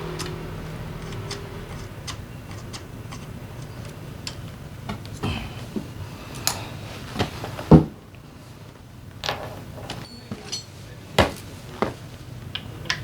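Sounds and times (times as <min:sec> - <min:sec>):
metal tools knocking on engine parts: 0:09.2 - 0:13.0.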